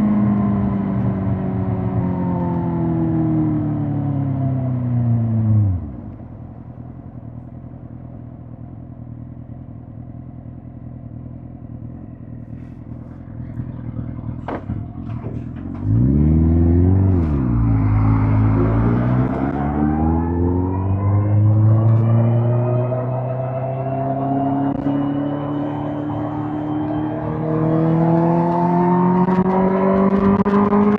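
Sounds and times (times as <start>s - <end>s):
motorcycle engine revving: 13.4s - 30.9s.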